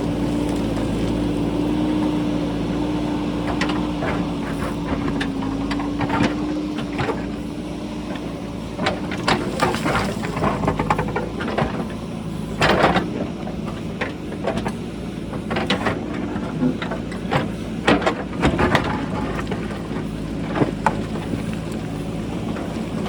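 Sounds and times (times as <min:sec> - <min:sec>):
diesel engine running: 0:00.0 - 0:23.0
rocks rolling downhill: 0:03.3 - 0:23.0
rocks clattering against bucket: 0:08.8 - 0:23.0.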